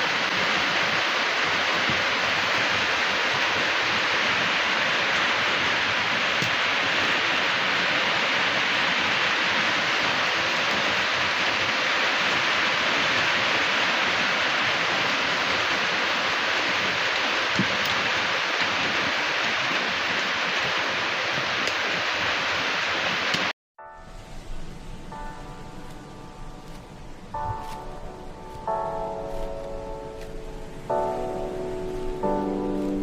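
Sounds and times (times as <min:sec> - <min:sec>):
floodwater flowing: 0:00.0 - 0:23.5
heavy rain: 0:00.0 - 0:33.0.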